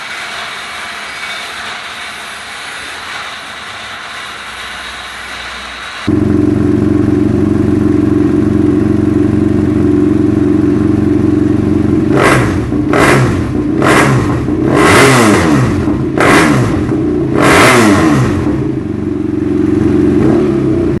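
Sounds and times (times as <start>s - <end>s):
motorcycle engine idling and revving: 6.0s - 21.0s.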